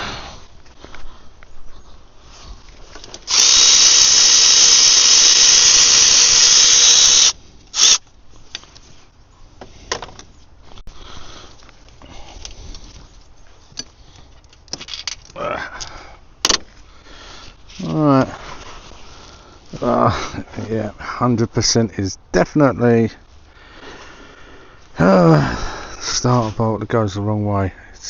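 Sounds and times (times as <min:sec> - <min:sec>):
cordless power tool running: 0:03.3 - 0:08.0.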